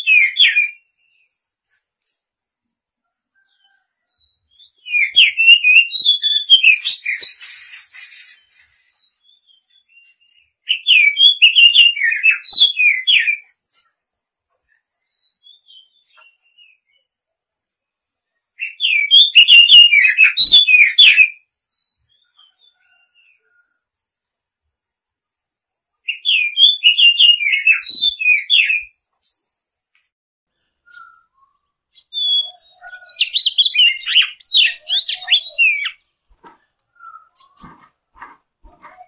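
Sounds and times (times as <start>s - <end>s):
bird singing whistled notes: 0.0s - 1.3s, 3.4s - 13.6s, 15.0s - 17.1s, 18.6s - 23.8s, 26.1s - 29.0s, 30.8s - 36.0s, 36.9s - 37.6s.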